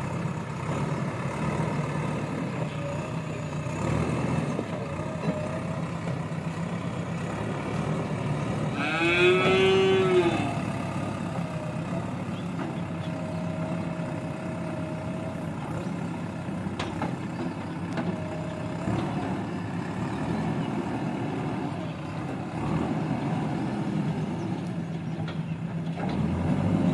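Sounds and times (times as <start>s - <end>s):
diesel engine running: 0.0s - 26.9s
drawn-out rising and falling call: 7.4s - 16.3s.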